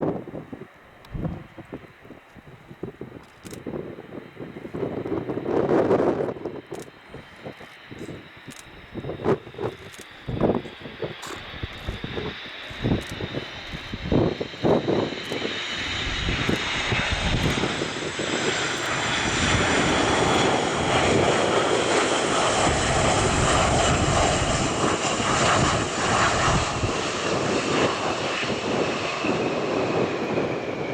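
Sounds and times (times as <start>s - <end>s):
jet engines roaring: 0.0s - 30.9s.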